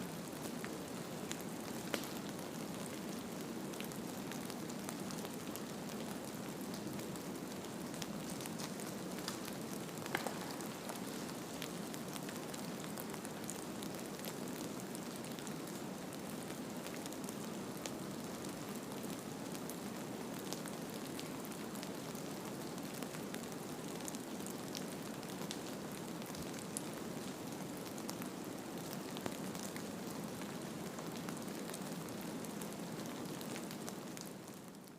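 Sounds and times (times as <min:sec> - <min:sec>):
faint ticks and patters: 0:00.3 - 0:03.0, 0:03.7 - 0:15.9.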